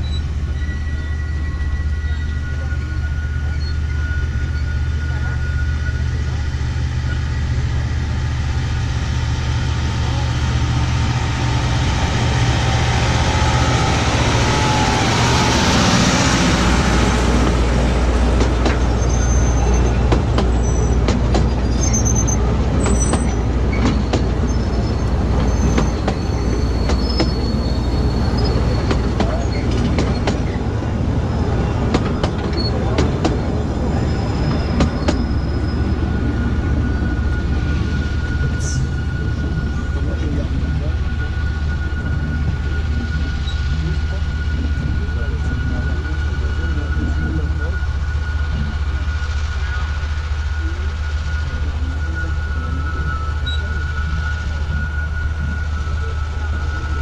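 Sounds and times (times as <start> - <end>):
high-pitched wheel squeals: 0.0 - 7.5, 18.8 - 40.1, 51.3 - 57.0
small train rumbling on track: 0.0 - 57.0.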